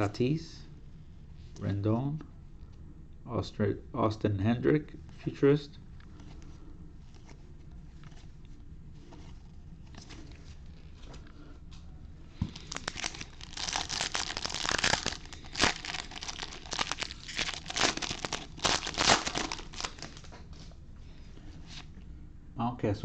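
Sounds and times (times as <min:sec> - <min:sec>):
cards shuffling: 0:12.4 - 0:20.4
wrapper tearing and crinkling: 0:12.5 - 0:20.3.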